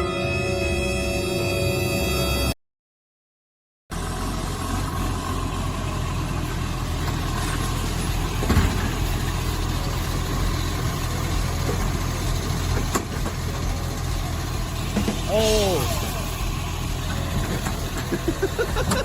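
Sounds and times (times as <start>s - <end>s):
engine rumbling: 3.9s - 19.0s
thump: 8.4s - 9.0s.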